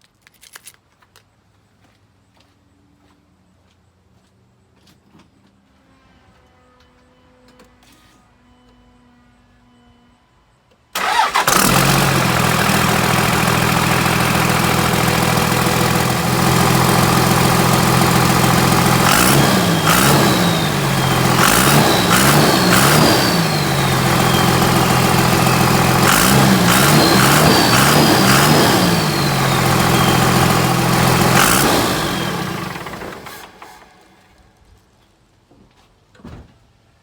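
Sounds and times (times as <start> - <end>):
truck engine starting and revving: 11.0 - 34.2.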